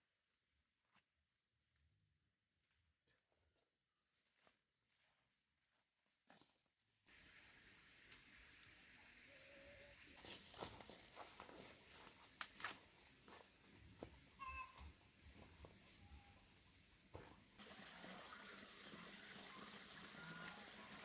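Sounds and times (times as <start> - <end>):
high-pitched insect trilling: 7.1 - 10.6, 11.9 - 17.6.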